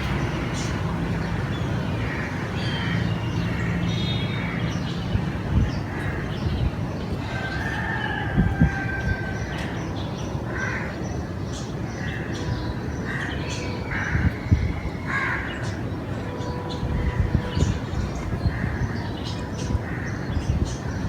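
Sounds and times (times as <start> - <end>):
crows cawing: 10.5 - 11.0, 15.1 - 15.7.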